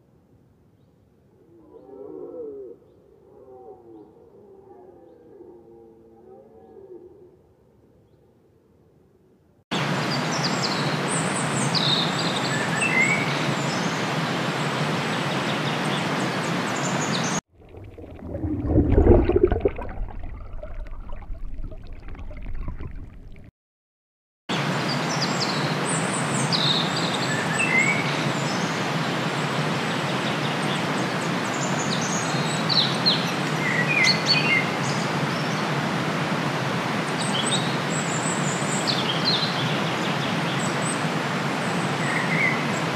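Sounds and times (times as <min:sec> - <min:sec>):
steady outdoor hiss: 0:07.7 - 0:17.4, 0:24.5 - 0:42.9
low underwater rumble: 0:17.6 - 0:23.5.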